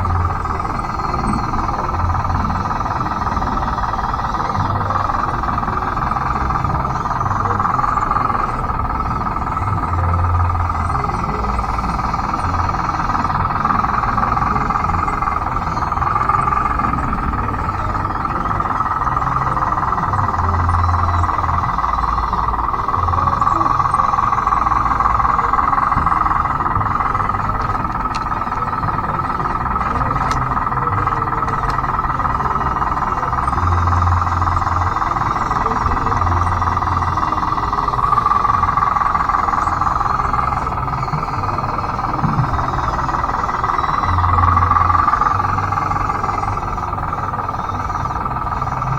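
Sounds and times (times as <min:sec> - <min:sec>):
low rumbles: 0:00.0 - 0:48.9
toy bulldozer whine and grind: 0:00.0 - 0:48.9.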